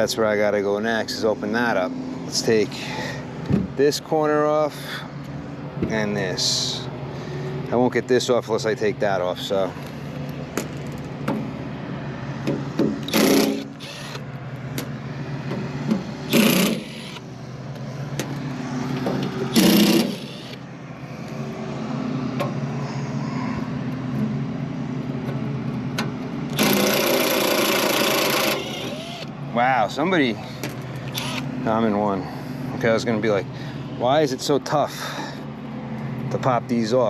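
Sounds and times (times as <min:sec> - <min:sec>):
steady machine hum: 0:00.0 - 0:37.0
power driver spinning screws: 0:13.0 - 0:14.2, 0:16.3 - 0:17.2, 0:19.5 - 0:20.6, 0:26.5 - 0:29.3, 0:31.1 - 0:31.5.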